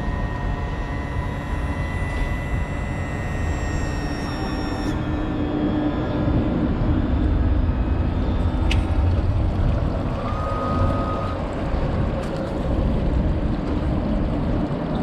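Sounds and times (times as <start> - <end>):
brief thin tone: 1.5 - 5.1
boat engine rumbling: 5.1 - 15.0.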